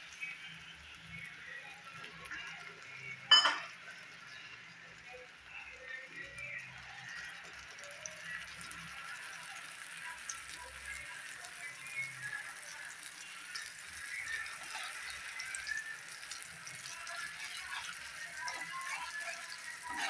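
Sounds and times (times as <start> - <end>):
eggs sizzling in a frying pan: 0.0 - 20.0
faint background music: 0.0 - 20.0
spatula scraping a pan: 16.8 - 20.0.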